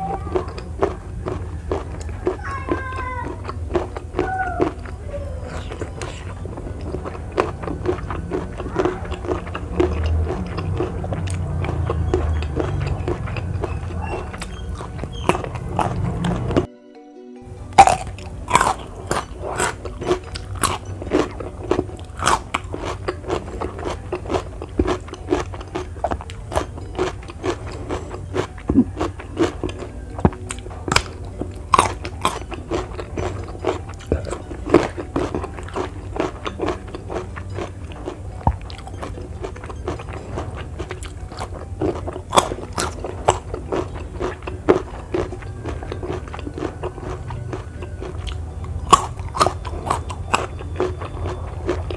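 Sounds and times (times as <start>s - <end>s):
crunchy chewing of vegetables: 0.0s - 16.7s, 17.6s - 51.9s
low steady hum: 0.0s - 16.7s.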